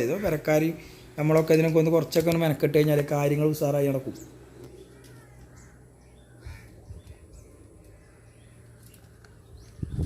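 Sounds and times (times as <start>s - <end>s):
faint bird calls: 4.1s - 10.0s.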